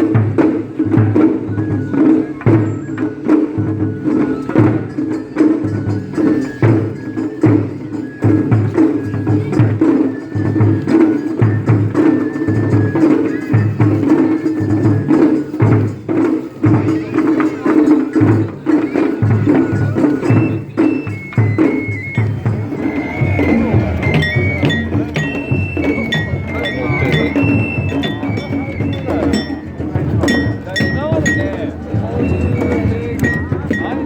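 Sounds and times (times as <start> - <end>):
deep drum beats: 0.0 - 34.0
festival music: 0.0 - 34.0
high held melody notes: 20.4 - 34.0.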